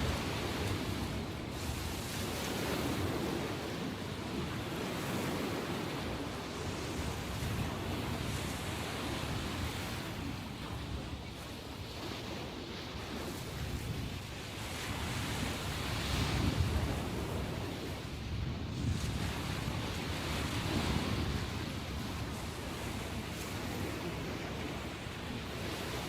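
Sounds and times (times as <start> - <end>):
waves washing in: 0.0 - 26.0
wind on microphone: 0.0 - 26.0.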